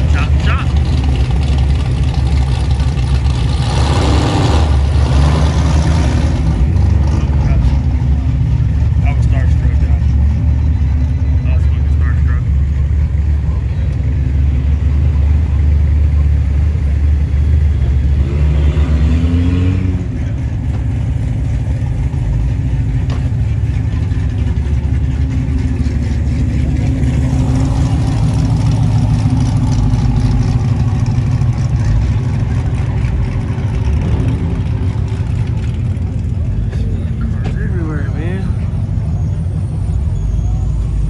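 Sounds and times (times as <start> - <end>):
car engines running: 0.0 - 41.0
engine revving: 2.3 - 10.5, 17.3 - 20.8.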